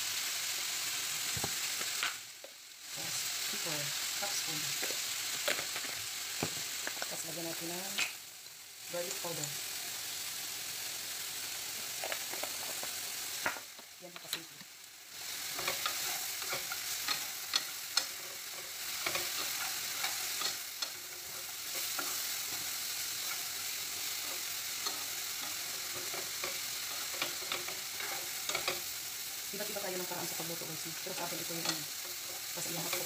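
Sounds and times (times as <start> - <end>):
vegetables sizzling in oil: 0.0 - 33.0
spoon scraping pan: 15.2 - 33.0.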